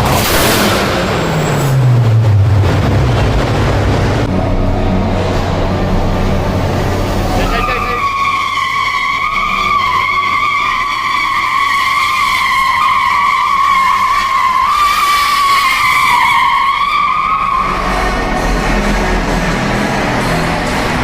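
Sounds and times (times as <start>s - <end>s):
car tyres squealing: 6.5s - 21.0s.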